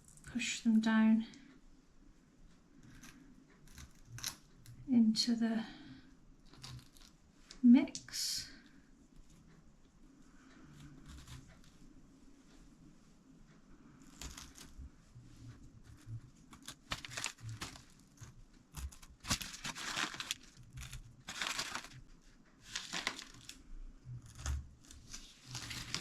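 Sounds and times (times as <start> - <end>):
candy eggs crackling in chocolate mix: 6.4 - 8.6, 14.0 - 14.9, 15.7 - 26.0.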